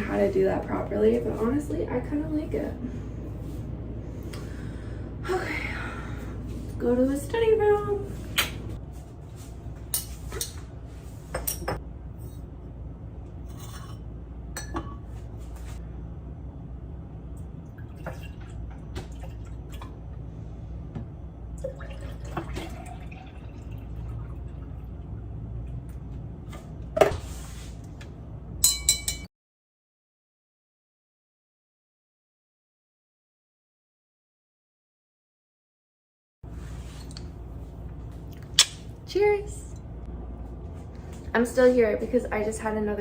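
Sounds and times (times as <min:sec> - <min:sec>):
low steady hum: 0:00.0 - 0:29.3, 0:36.4 - 0:43.0
drinking glass clinking: 0:28.6 - 0:29.3.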